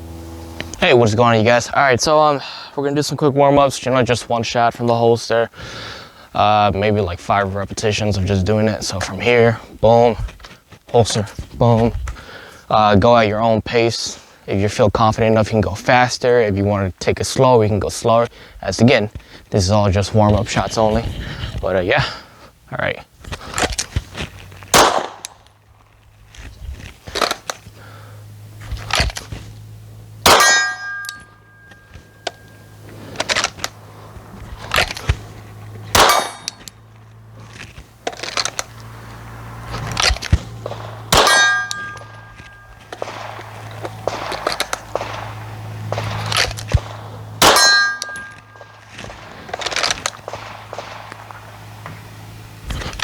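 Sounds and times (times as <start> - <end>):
faint shots and clanks: 24.7 - 25.4, 30.2 - 32.5, 35.9 - 36.8, 39.9 - 52.0
pistol shots: 24.7 - 25.4, 30.2 - 31.9, 35.9 - 36.7, 40.0 - 51.9
metallic ringing of steel target: 30.2 - 32.8, 35.9 - 36.7, 40.7 - 43.4, 46.8 - 48.8.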